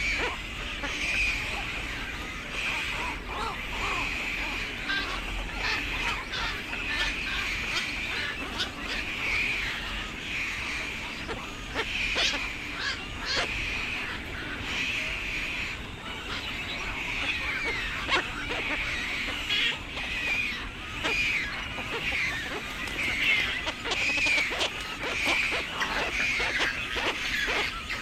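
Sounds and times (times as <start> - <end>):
birds calling: 0.0 - 28.0.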